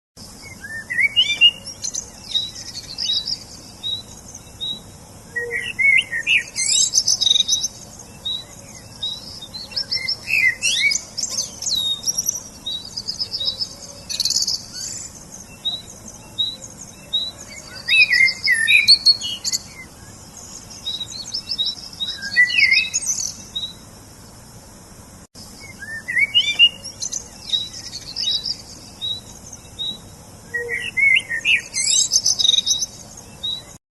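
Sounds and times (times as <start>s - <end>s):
songbirds chirping and trilling: 0.2s - 33.8s.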